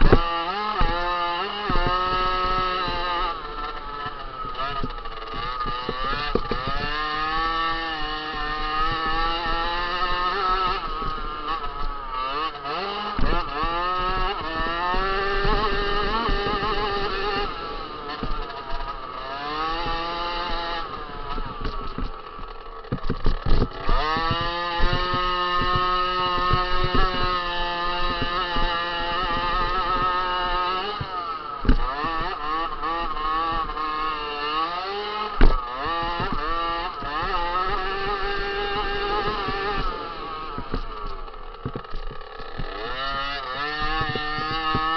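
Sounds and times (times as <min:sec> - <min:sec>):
dirt bike engine revving: 0:00.0 - 0:44.9
sharp knocks: 0:19.7 - 0:32.4, 0:35.2 - 0:44.9.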